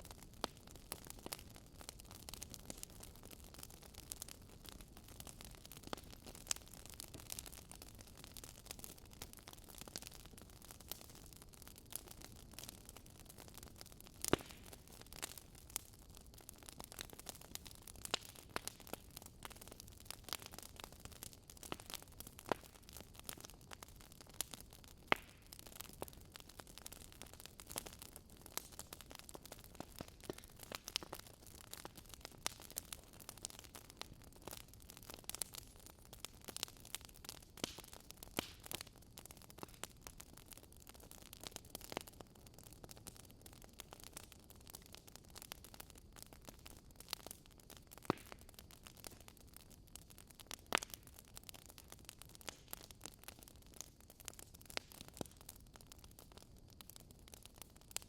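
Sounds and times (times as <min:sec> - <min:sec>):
wood fire crackling: 0:00.0 - 0:58.0
faint steady hiss: 0:03.6 - 0:58.0.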